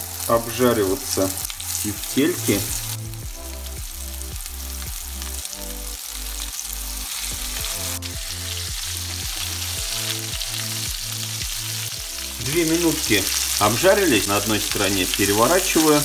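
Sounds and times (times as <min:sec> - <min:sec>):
meatballs sizzling in hot oil: 0:00.0 - 0:16.0
low repeating pulse: 0:02.7 - 0:05.9.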